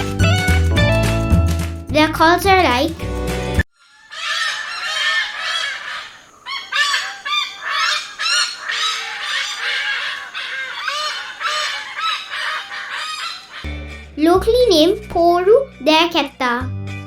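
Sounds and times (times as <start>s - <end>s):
hornbills calling: 3.8s - 14.1s.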